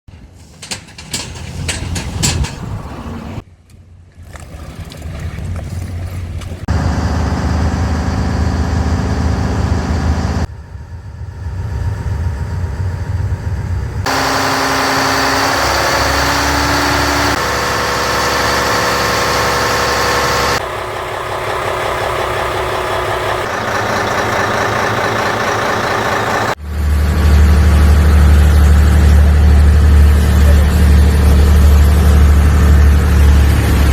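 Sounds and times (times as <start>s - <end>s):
boat engine running: 5.4s - 10.5s, 12.6s - 33.9s.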